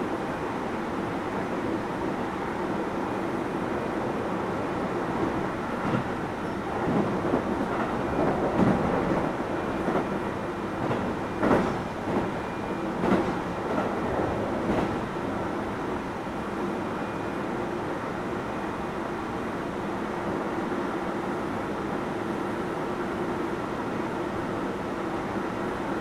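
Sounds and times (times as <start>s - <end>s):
electric train rumbling: 0.0s - 19.5s
train wheels clacking over rail joints: 10.8s - 12.4s.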